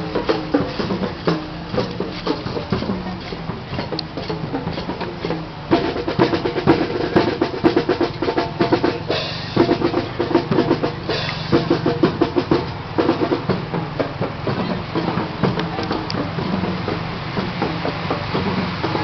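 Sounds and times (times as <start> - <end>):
drums beating rapidly: 0.0 - 19.0.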